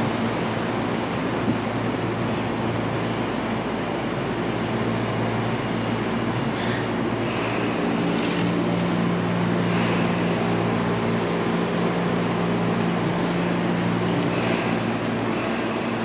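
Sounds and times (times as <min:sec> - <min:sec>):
train equipment humming: 0:00.0 - 0:16.0.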